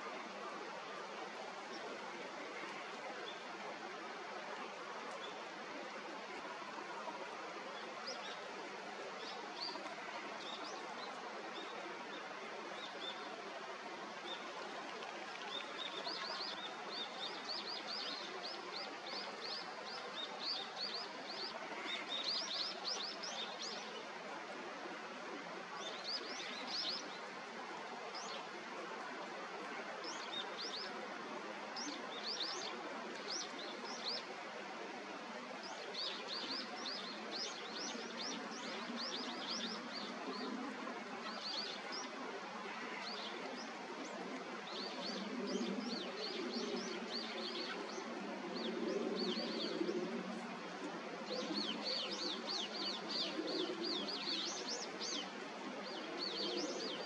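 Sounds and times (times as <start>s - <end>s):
birds chirping: 51.3s - 57.0s.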